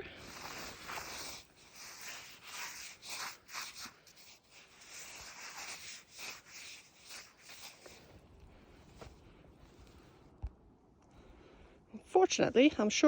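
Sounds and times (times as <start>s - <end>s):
frozen snow crunching and scraping: 0.0s - 10.2s.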